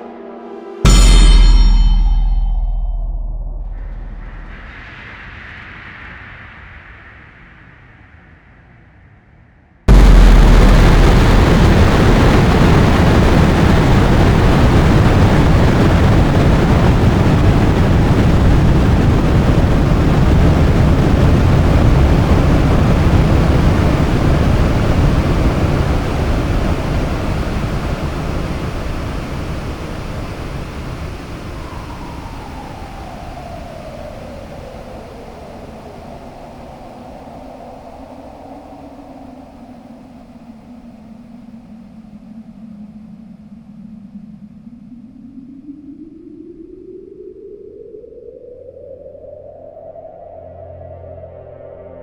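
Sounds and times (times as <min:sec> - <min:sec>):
falling tone: 0:00.0 - 0:05.2, 0:09.9 - 0:16.1
synthesized explosion with deep rumble: 0:00.9 - 0:05.4, 0:09.9 - 0:32.2.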